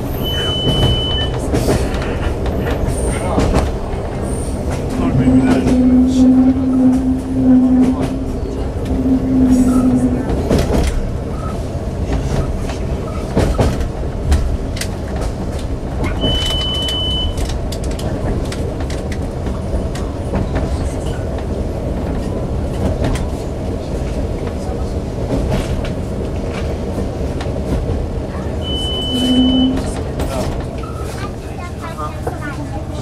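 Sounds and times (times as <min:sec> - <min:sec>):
train wheels rumbling on rail: 0:00.0 - 0:33.0
high beep: 0:00.2 - 0:01.3.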